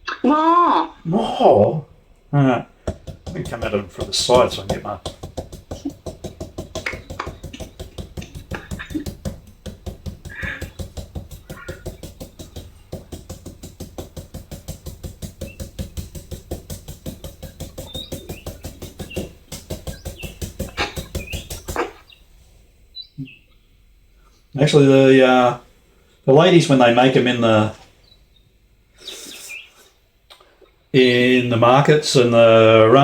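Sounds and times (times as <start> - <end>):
knife chopping papaya: 2.8 - 22.1.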